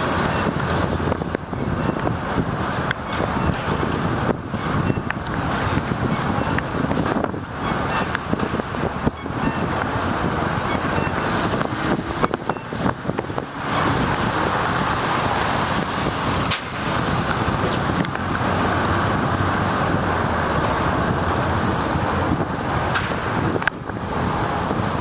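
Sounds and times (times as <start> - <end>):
wind on microphone: 0.0 - 25.0.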